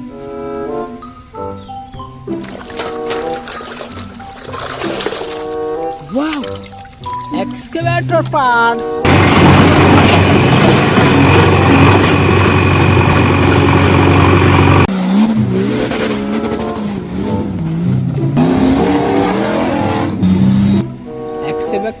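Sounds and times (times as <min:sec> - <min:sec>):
loud engine humming: 0:09.0 - 0:21.4
wavering pitch sound: 0:10.7 - 0:21.8.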